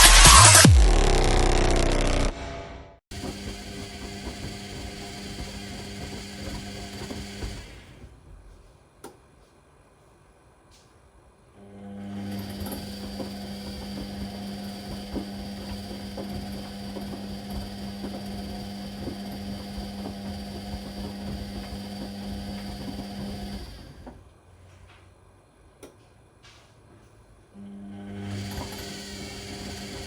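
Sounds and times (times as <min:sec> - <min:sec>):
washing machine motor whining: 0:03.1 - 0:08.2, 0:11.6 - 0:24.3, 0:27.6 - 0:30.0.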